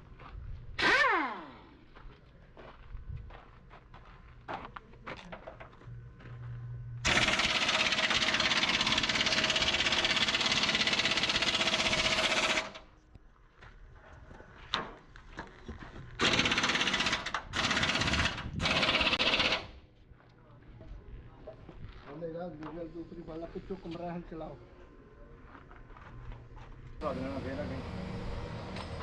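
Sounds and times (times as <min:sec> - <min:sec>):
power tool hammering rapidly: 0:07.0 - 0:12.8, 0:16.2 - 0:19.7.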